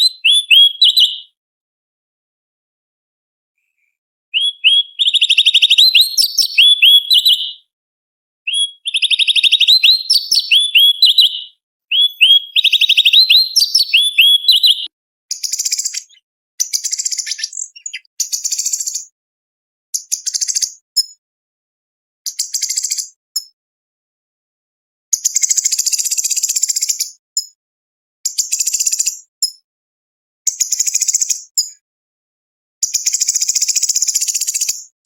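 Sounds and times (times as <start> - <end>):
leafbird singing chirping notes: 0.0 - 1.3, 4.4 - 7.6, 8.5 - 19.1.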